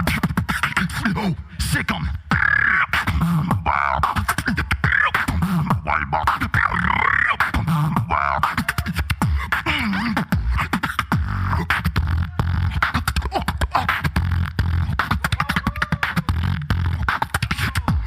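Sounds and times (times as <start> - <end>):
person beatboxing: 0.0 - 18.0.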